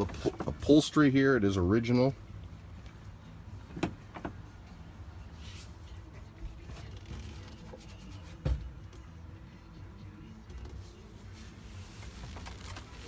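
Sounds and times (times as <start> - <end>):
rubbing and handling noises: 5.3 - 8.7, 10.7 - 13.0.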